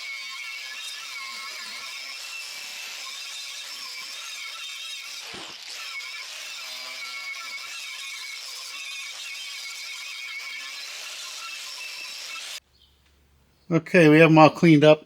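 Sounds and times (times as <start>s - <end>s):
wire wheel grinder scratching metal: 0.0s - 12.6s.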